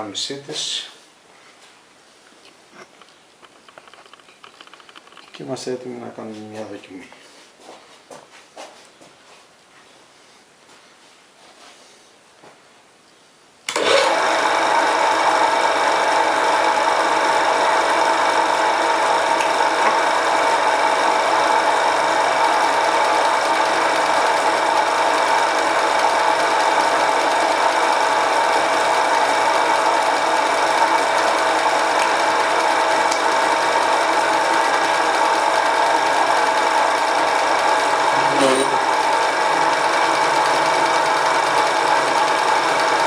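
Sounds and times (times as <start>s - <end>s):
lathe motor whining: 13.7s - 43.0s.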